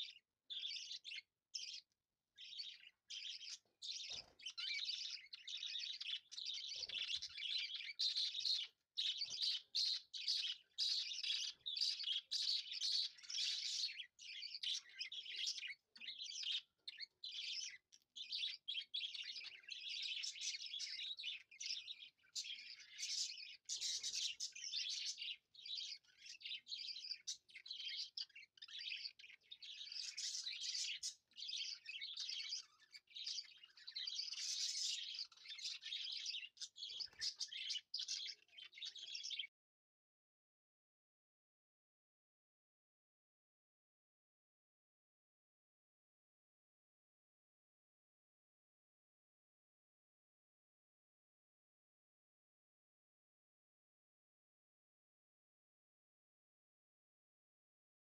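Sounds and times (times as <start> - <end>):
small birds chirping: 0.0 - 39.6.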